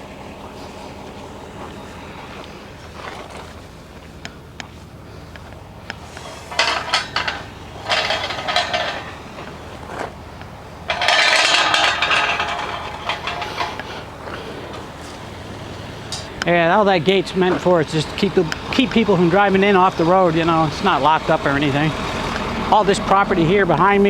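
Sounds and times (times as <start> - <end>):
metal gate clanking and rattling: 6.0 - 21.0.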